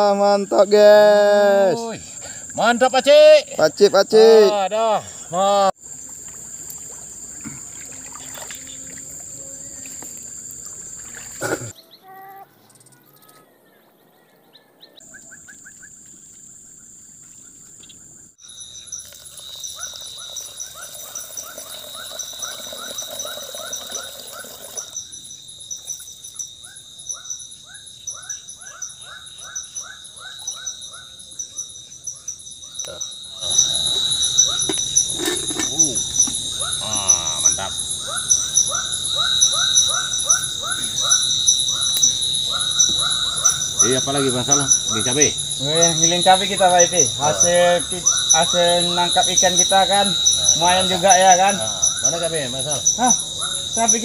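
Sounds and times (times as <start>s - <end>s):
insects whining and trilling: 0.0s - 54.0s
bird calls: 11.0s - 25.0s, 25.7s - 54.0s.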